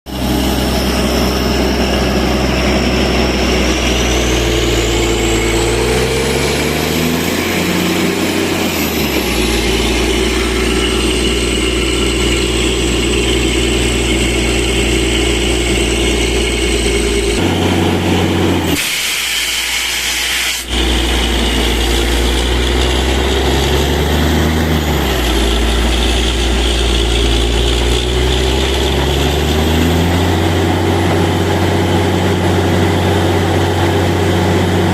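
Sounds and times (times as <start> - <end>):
drilling rig engine whining: 0.1 - 34.9
hiss: 18.7 - 20.8.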